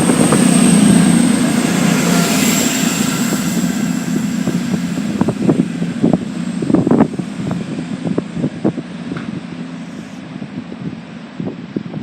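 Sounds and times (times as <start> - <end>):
diesel train engines droning: 0.0 - 12.0.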